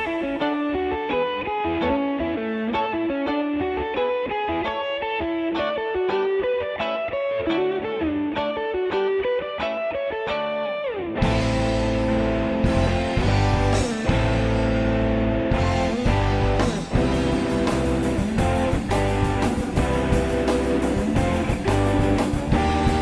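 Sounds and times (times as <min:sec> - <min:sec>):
lead electric guitar: 0:00.0 - 0:23.0
band with drums: 0:11.2 - 0:23.0.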